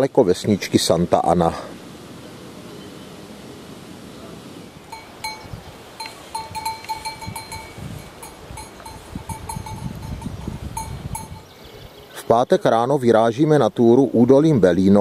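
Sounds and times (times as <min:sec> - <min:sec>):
livestock bells clinking: 0:04.9 - 0:11.5.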